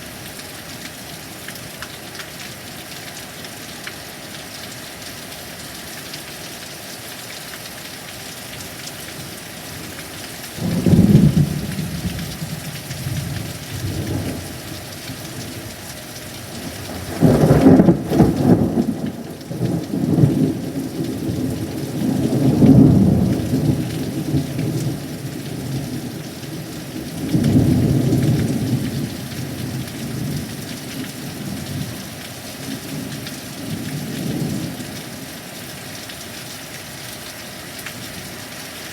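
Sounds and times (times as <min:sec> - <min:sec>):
heavy rain: 0:00.0 - 0:38.9
thunder rumbling: 0:10.6 - 0:14.8, 0:16.6 - 0:26.2.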